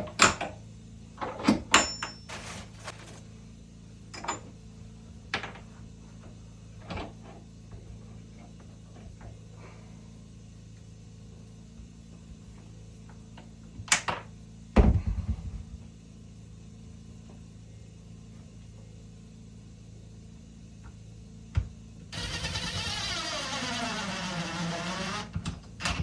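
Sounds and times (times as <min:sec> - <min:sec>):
steady low hum: 0:01.9 - 0:25.9
heavy thump: 0:14.8 - 0:15.8.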